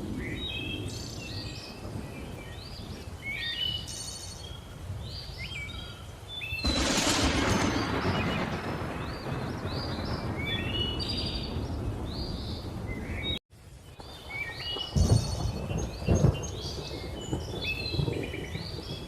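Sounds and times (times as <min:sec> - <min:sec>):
loud thunder cracks: 0:06.6 - 0:13.1, 0:14.8 - 0:19.0
thunder rumble: 0:06.6 - 0:13.4, 0:14.0 - 0:19.0.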